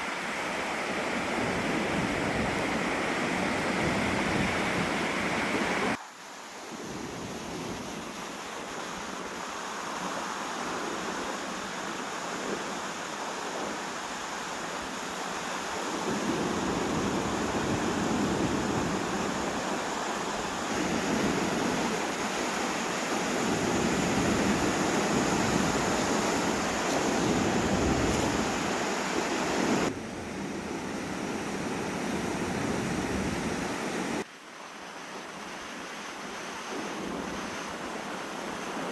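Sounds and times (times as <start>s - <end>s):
waves washing on beach: 0.0s - 38.9s
wind buffeting microphone: 1.2s - 6.0s, 15.9s - 19.8s, 20.6s - 34.2s.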